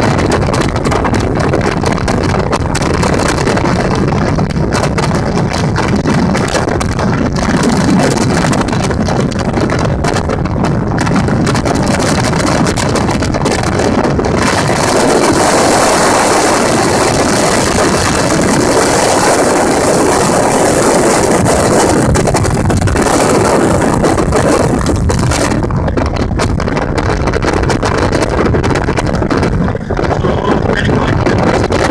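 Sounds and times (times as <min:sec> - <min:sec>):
motorboat engine running: 0:00.0 - 0:31.9
wind buffeting microphone: 0:00.0 - 0:31.9.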